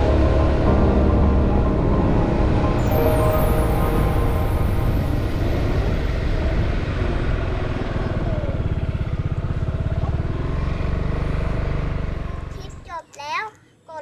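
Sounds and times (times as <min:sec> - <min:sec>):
motorcycle engine running: 0:05.7 - 0:12.8.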